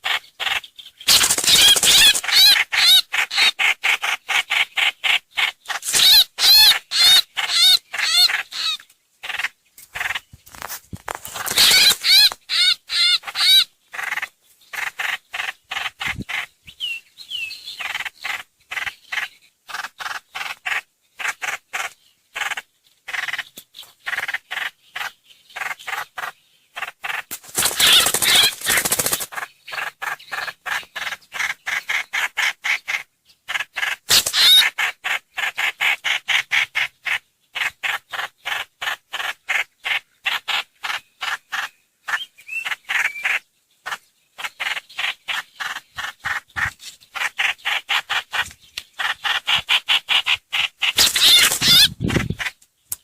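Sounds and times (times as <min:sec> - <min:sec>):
harsh bird chattering: 0:00.0 - 0:10.3, 0:11.3 - 0:16.6, 0:17.7 - 0:52.6
bird calling short repeated notes: 0:01.1 - 0:03.6, 0:11.5 - 0:13.7, 0:49.3 - 0:52.5.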